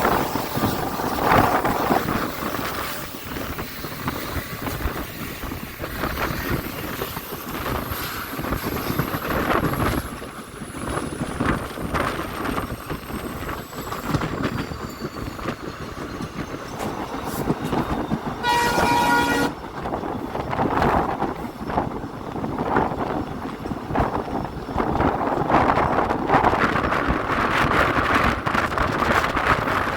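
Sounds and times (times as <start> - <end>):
train rumbling on rails: 0.0 - 29.9
train horn blast: 18.4 - 19.6.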